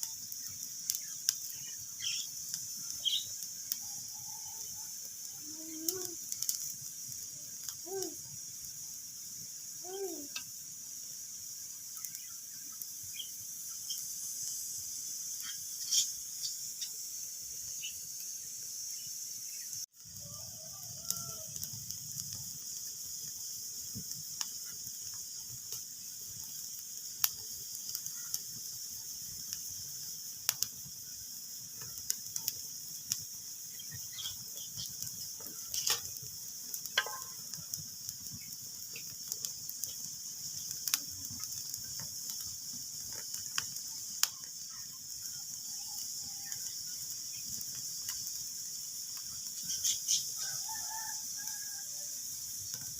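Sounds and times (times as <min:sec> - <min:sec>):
fire pops and snaps: 0:00.0 - 0:03.9, 0:05.4 - 0:09.4, 0:20.0 - 0:50.4, 0:52.5 - 0:52.9
fire hissing: 0:00.0 - 0:52.9.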